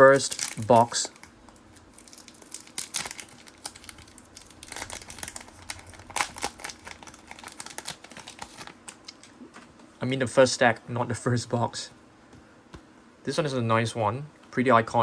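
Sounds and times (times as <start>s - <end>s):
cards rustling and crinkling: 0.0s - 9.0s.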